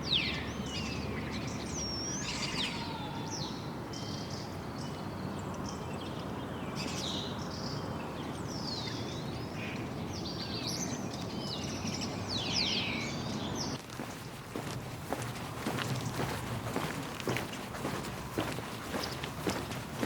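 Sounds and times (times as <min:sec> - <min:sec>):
birds singing and chirping: 0:00.0 - 0:20.0
steady rushing noise: 0:13.9 - 0:20.0.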